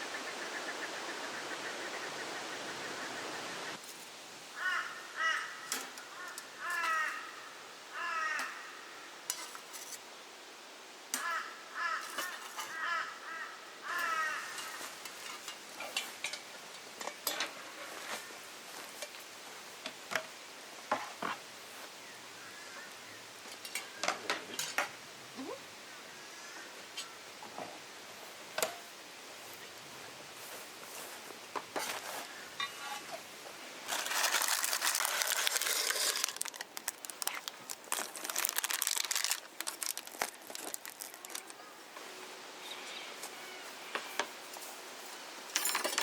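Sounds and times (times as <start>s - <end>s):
crows cawing: 4.6s - 9.1s, 11.2s - 14.9s.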